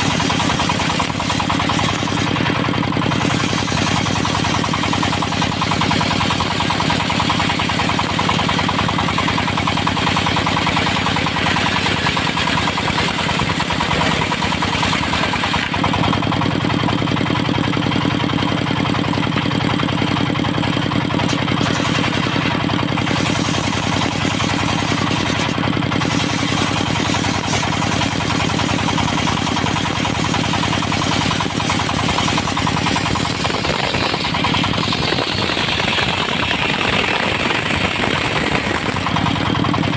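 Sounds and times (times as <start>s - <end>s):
saw blade hissing through log: 0.0s - 2.4s, 21.6s - 39.2s
diesel engine running under load: 0.0s - 39.9s.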